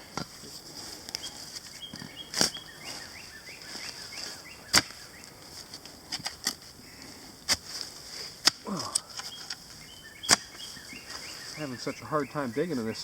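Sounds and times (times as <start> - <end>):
shovel chopping into soil: 2.3 - 3.1, 3.7 - 5.0, 5.6 - 6.6, 7.4 - 9.6, 10.2 - 11.2.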